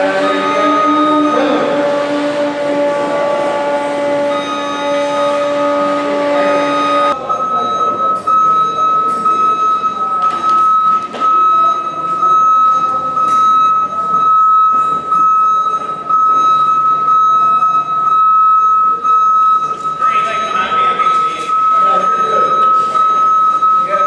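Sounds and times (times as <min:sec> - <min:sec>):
clattering mechanical noise: 0:00.0 - 0:18.4
high-pitched buzzer tone: 0:00.0 - 0:24.0.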